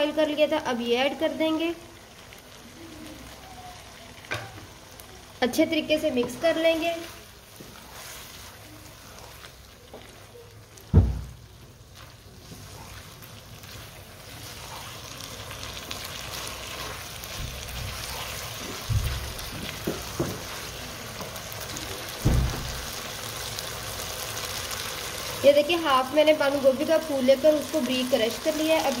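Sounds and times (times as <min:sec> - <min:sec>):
food sizzling in a wok: 0:00.0 - 0:29.0.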